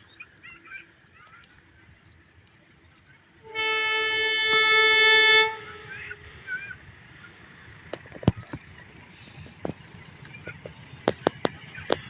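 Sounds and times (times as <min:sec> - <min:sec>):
train horn blast: 0:03.4 - 0:06.3.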